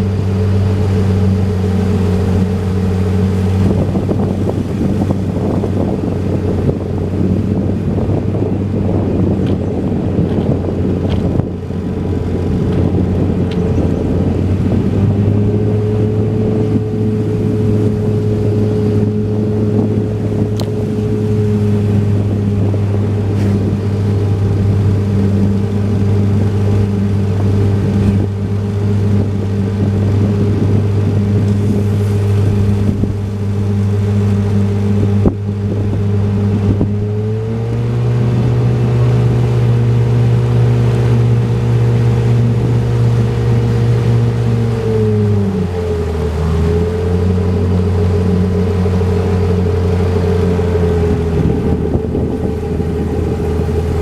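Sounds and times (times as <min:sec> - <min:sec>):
motorboat engine running: 0:00.0 - 0:54.0
wind buffeting microphone: 0:00.0 - 0:54.0.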